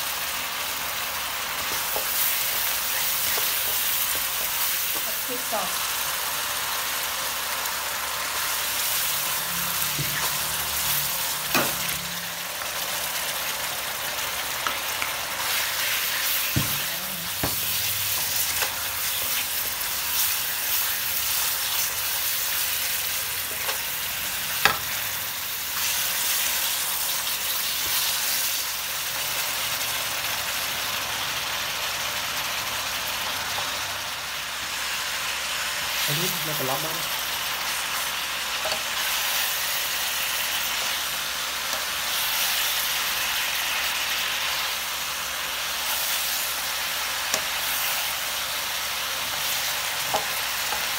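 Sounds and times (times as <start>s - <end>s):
food sizzling in a wok: 0.0s - 50.9s
spatula knocking on wok: 16.5s - 18.3s.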